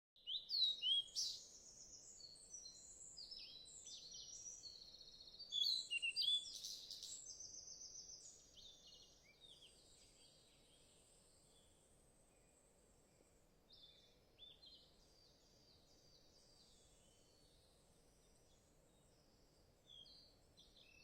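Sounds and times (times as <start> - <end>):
birds singing and chirping: 0.2 - 11.7.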